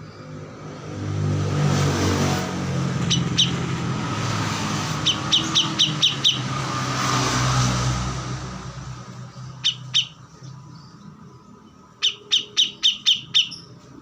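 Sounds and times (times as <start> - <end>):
songbird high chirps: 3.1 - 3.7, 5.0 - 6.6, 9.3 - 14.0.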